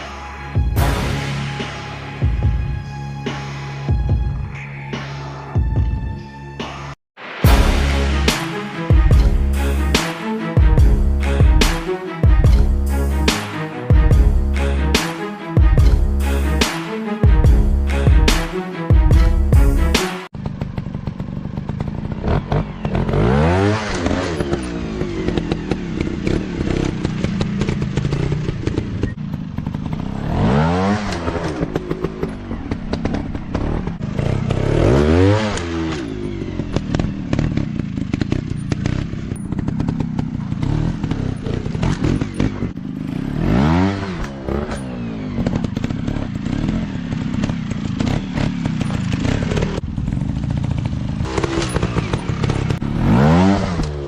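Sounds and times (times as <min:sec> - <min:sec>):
dirt bike engines revving: 0:19.2 - 0:54.0.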